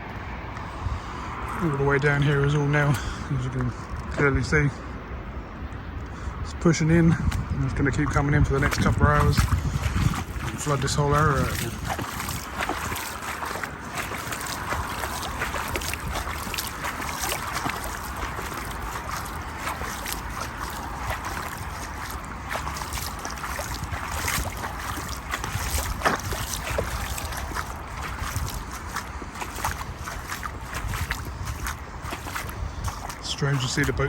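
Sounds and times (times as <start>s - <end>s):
moving water: 0.0s - 34.0s
wind rumbling on microphone: 0.0s - 34.0s
rain taps and splashing: 8.1s - 34.0s.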